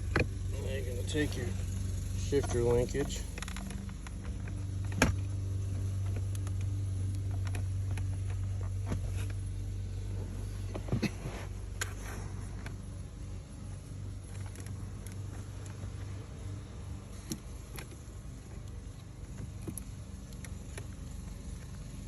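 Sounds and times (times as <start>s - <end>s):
shifter linkage clicks and knocks: 0.0s - 11.1s, 17.1s - 22.0s
steady low hum: 0.0s - 22.0s.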